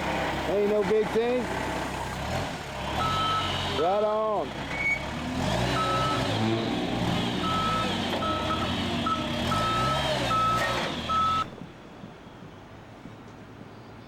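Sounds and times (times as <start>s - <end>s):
truck engine running: 0.0s - 11.8s
reversing beeper: 3.0s - 3.6s, 5.7s - 6.3s, 7.4s - 11.5s.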